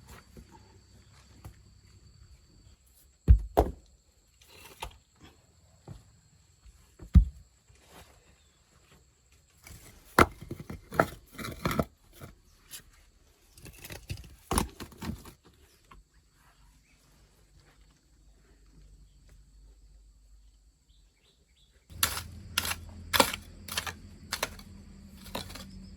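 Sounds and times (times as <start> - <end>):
objects knocking and thudding: 3.2 - 3.9, 7.0 - 7.5, 9.7 - 11.9, 21.9 - 25.9.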